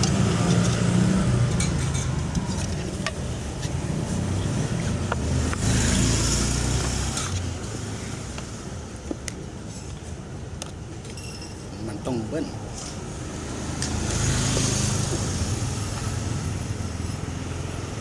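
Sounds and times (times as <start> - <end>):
dishes and utensils clinking: 0.0 - 3.8, 11.0 - 11.7
vehicle engine rumble: 0.0 - 11.7.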